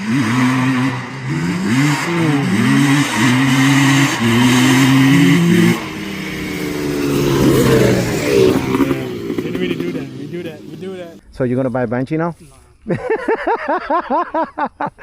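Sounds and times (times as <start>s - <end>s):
two-stroke engine revving: 0.0s - 11.2s.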